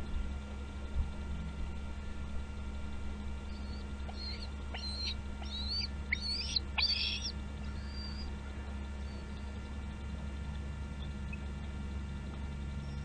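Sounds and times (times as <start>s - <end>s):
steady low hum: 0.0s - 13.0s
eagle chirping calls: 3.4s - 9.8s, 10.4s - 11.8s, 12.7s - 13.0s.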